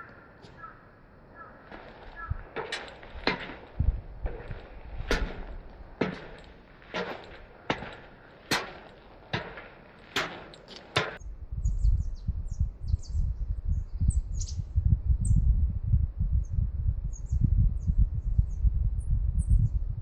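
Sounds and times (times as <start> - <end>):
high bird chirps: 0.0 - 3.2
wind buffeting microphone: 0.0 - 20.0
footsteps on rocky trail: 1.4 - 11.2.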